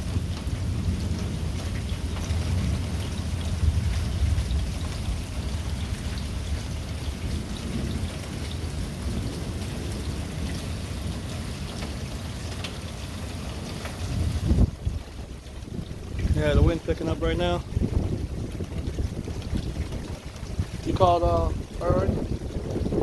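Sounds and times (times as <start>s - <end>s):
low thunder rumble: 0.0s - 23.0s
raindrop ticks: 0.0s - 23.0s
steady rain falling: 0.0s - 23.0s.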